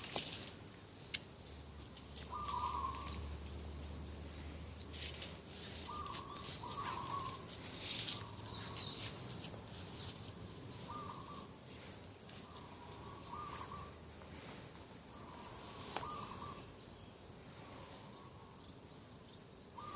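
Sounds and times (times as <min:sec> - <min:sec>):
small birds chirping: 0:00.0 - 0:19.9
dove cooing: 0:02.3 - 0:03.3, 0:05.8 - 0:08.9, 0:10.7 - 0:11.5, 0:12.5 - 0:14.0, 0:15.2 - 0:16.7.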